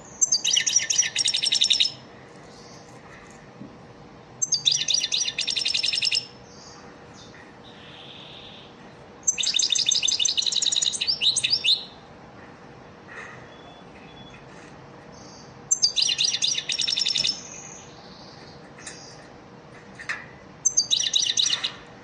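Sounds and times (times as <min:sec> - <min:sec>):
goldfinch twittering song: 0:00.2 - 0:02.0, 0:04.4 - 0:12.0, 0:15.1 - 0:19.2, 0:20.6 - 0:21.8.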